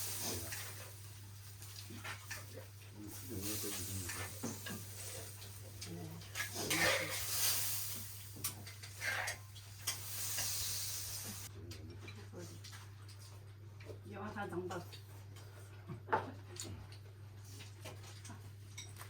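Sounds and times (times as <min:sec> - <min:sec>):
food sizzling in a pan: 0:00.0 - 0:11.5
utensil scraping a pan: 0:06.4 - 0:07.7.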